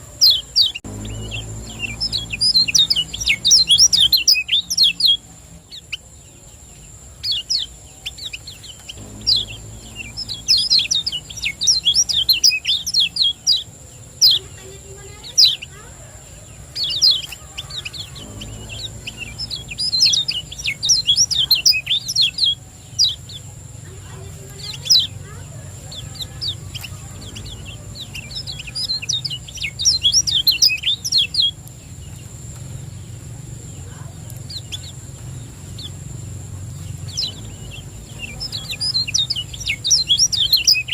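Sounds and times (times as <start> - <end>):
bird chirping: 0.0 - 40.9
low hum: 0.7 - 5.7, 9.0 - 13.6, 17.8 - 23.4
steady high-pitched tone: 9.0 - 12.9, 18.0 - 21.1.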